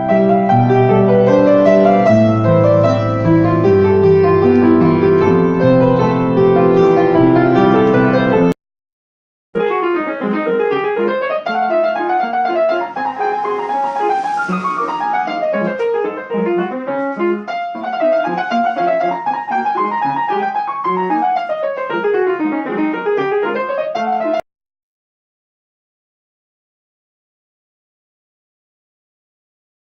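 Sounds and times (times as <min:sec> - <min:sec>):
piano scales and arpeggios: 0:00.0 - 0:08.6, 0:09.6 - 0:24.4.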